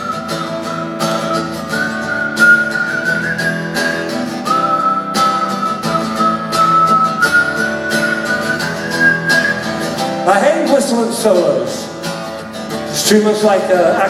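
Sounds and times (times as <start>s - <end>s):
man whistling a melody: 0.0s - 10.1s
strummed acoustic guitar: 0.0s - 14.0s.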